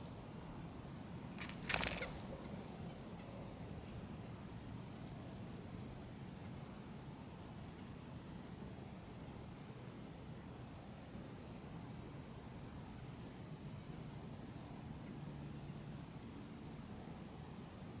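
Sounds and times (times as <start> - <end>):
high thin bird calls: 1.4 - 2.6.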